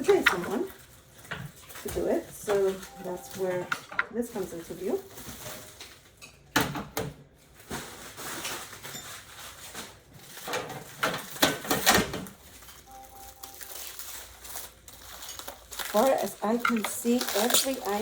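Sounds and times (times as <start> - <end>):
packaging rustling: 7.4 - 18.0.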